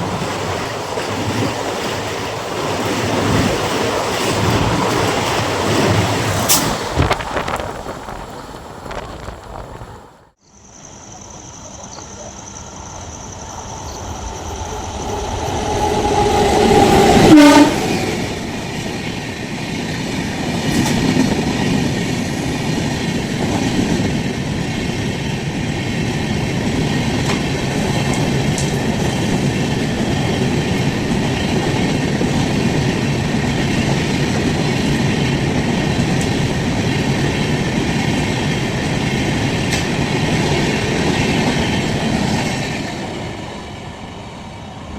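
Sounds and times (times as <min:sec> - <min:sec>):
train rumbling and clacking past: 0:00.0 - 0:44.9
train horn: 0:15.9 - 0:18.1.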